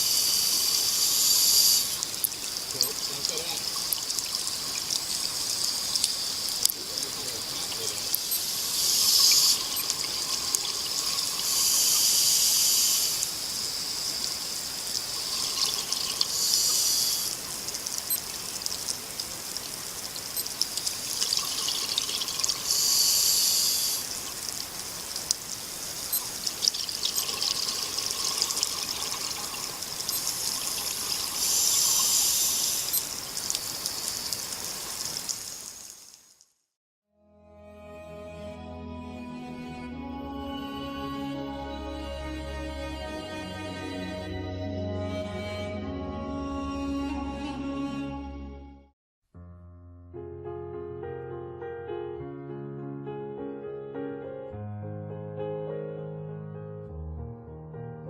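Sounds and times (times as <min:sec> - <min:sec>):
diver breathing through regulator: 0:00.0 - 0:02.0, 0:08.4 - 0:09.8, 0:11.2 - 0:13.3, 0:16.2 - 0:17.4, 0:22.6 - 0:24.2, 0:31.4 - 0:33.0.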